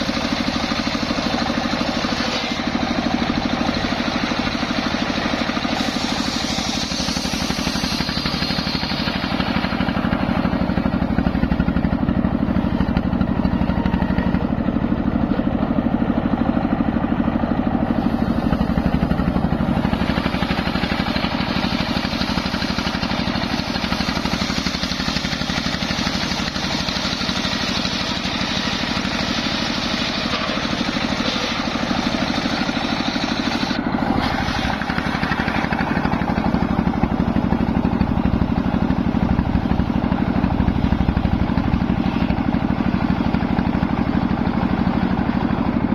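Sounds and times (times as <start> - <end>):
saw blade cutting wood: 0.0 - 11.6, 17.9 - 37.0
sawmill droning: 0.0 - 45.9.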